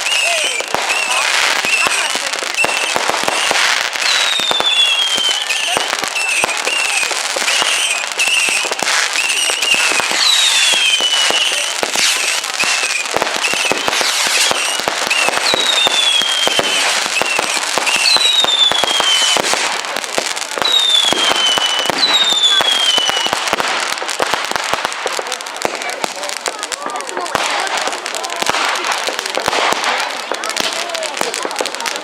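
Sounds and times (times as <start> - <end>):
long falling whistles: 0.0 - 19.4, 20.6 - 23.3
fireworks crackling and popping: 0.0 - 32.0
short fireworks whistles: 0.0 - 32.0.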